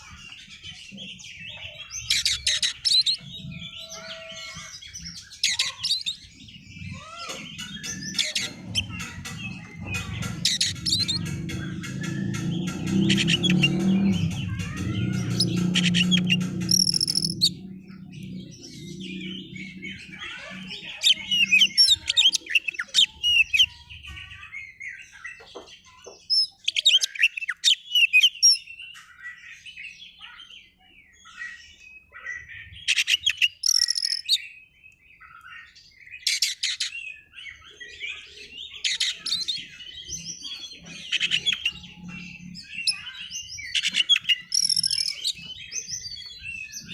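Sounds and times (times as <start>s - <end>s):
bird singing chirps and whistles: 0.0s - 25.5s, 26.2s - 46.9s
low hum: 8.5s - 20.2s.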